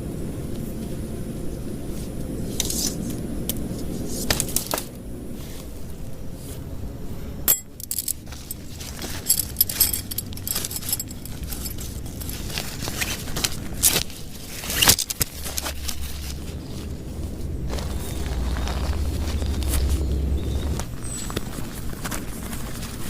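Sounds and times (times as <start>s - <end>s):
low rumble: 5.0s - 22.0s
hard objects clinking and knocking: 7.5s - 13.0s.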